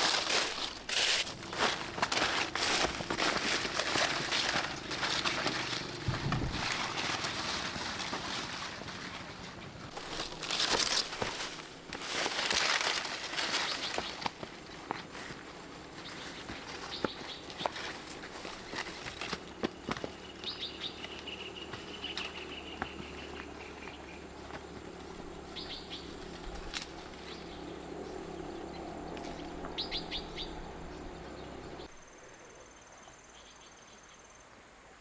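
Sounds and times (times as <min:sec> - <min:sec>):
dry crinkling and rustling: 0:00.0 - 0:31.9
dull thump: 0:06.0 - 0:06.7.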